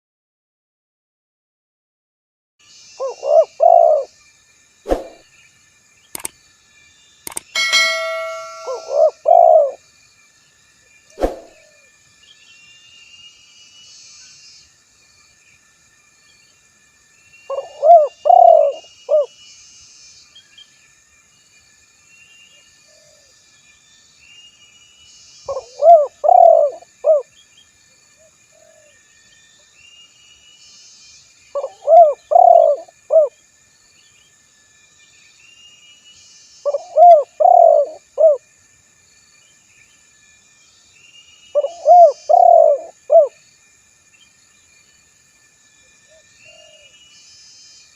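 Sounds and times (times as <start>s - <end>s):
dove cooing: 3.0s - 4.1s, 8.0s - 9.8s, 17.5s - 19.3s, 25.5s - 27.3s, 31.6s - 33.3s, 36.7s - 38.4s, 41.6s - 43.3s
small birds chirping: 4.9s - 9.8s, 17.3s - 20.7s, 29.4s - 33.3s, 40.9s - 43.3s
sharp click: 6.2s - 6.4s, 7.3s - 9.0s.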